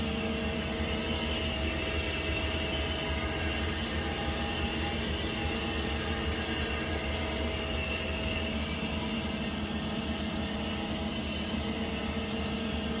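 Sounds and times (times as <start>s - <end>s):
lathe machine hum: 0.0s - 13.0s
mid-pitched machine whine: 0.0s - 13.0s.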